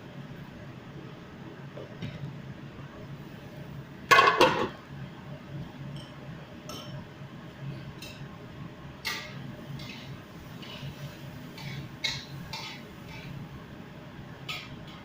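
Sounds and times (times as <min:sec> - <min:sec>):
dishes clanking: 0:04.1 - 0:04.8, 0:11.6 - 0:13.3.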